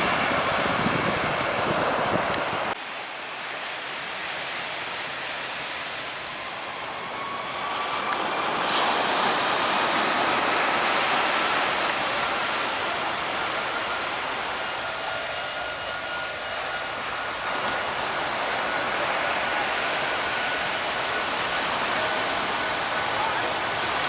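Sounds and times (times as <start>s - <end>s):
aircraft engine: 0.0s - 24.0s
beach surf rushing: 0.0s - 24.0s
thin rising whine: 4.9s - 24.0s.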